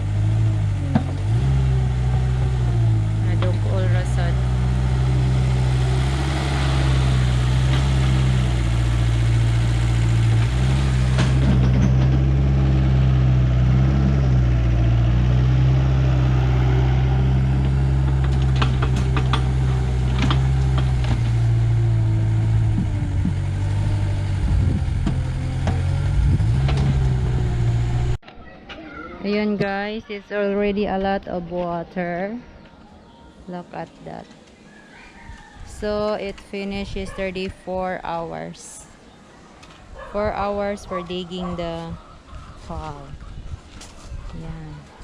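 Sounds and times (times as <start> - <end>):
diesel engine running: 0.0 - 28.2, 40.0 - 42.0.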